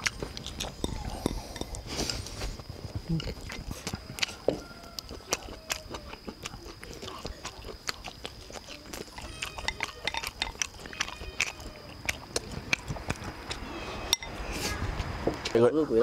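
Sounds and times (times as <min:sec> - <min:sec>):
person chewing food: 0:00.0 - 0:15.1
lip smacks: 0:03.3 - 0:13.7.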